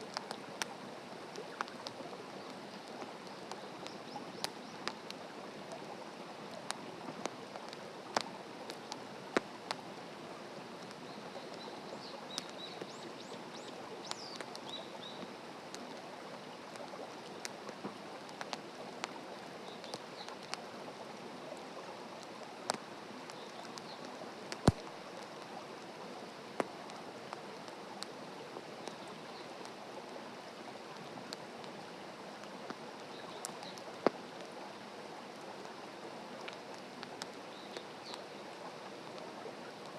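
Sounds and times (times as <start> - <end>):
wood fire crackling and popping: 0.0 - 5.8, 6.5 - 9.8, 12.4 - 12.9, 22.2 - 25.5, 36.4 - 38.2.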